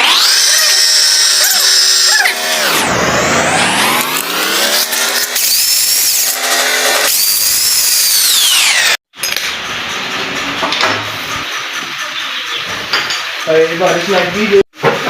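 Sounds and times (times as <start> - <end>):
power tool motor whining: 0.0 - 9.0.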